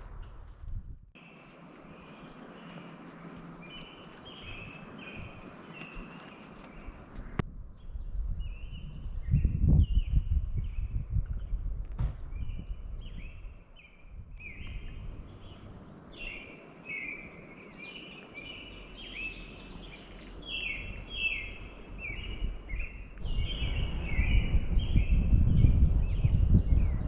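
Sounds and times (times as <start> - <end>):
bird chirping: 1.2 - 11.6, 12.4 - 27.0
low rumbling noise: 14.2 - 27.0.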